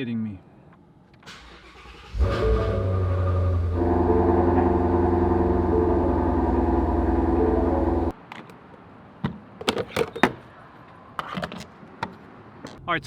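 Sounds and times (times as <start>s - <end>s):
car engine fast idle: 1.3s - 8.1s.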